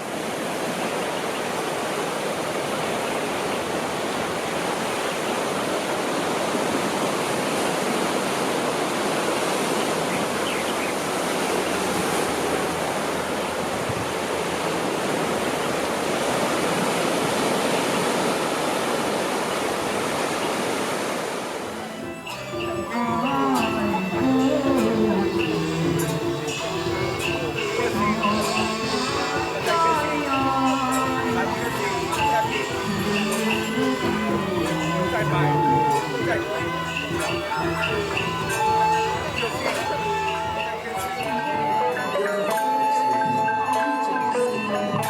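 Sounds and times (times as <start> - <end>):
rushing water: 0.0 - 42.2.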